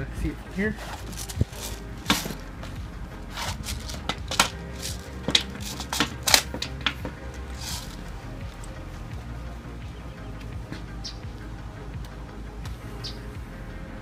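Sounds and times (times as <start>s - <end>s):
faint background music: 0.0s - 14.0s
sharp clicks and knocks: 3.4s - 7.9s.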